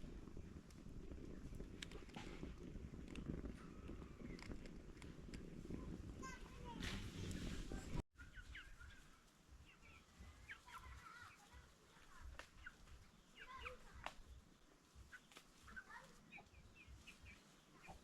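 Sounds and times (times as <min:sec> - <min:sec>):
chickens clucking: 0:06.4 - 0:18.0.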